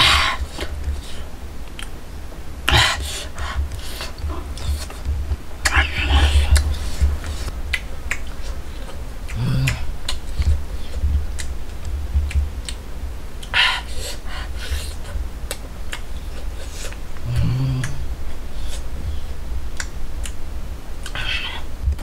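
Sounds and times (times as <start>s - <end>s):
low rumble: 0.0s - 13.6s
man chewing and lip-smacking: 0.5s - 2.0s, 2.7s - 20.4s.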